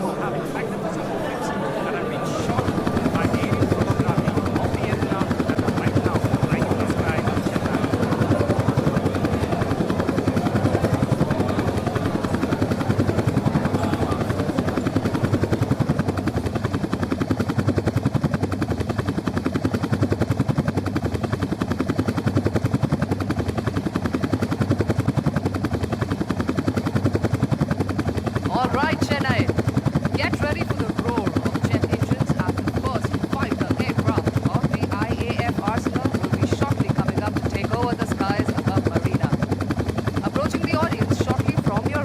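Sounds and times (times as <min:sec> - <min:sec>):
helicopter rotor blades beating: 0:00.0 - 0:42.0.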